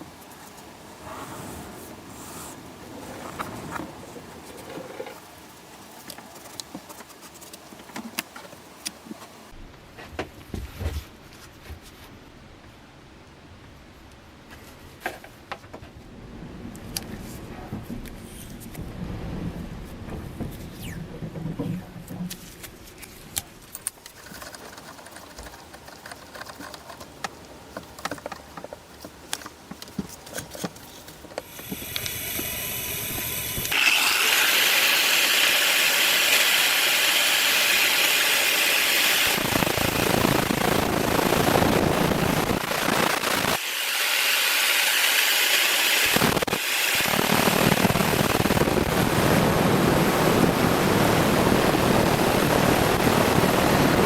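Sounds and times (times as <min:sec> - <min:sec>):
electric power tool grinding: 0:31.5 - 0:48.8.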